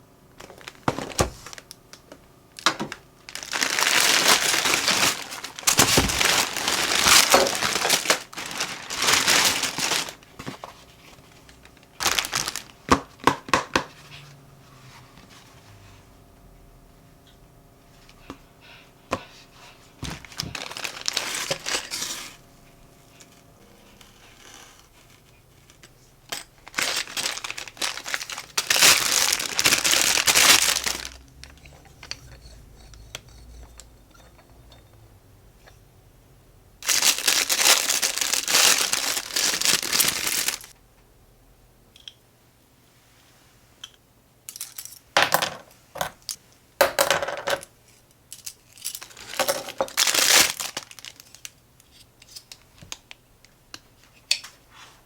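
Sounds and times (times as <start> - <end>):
plastic packaging crinkling: 0.4 - 12.9, 20.2 - 22.4, 26.6 - 32.4, 36.8 - 40.8, 48.4 - 51.6.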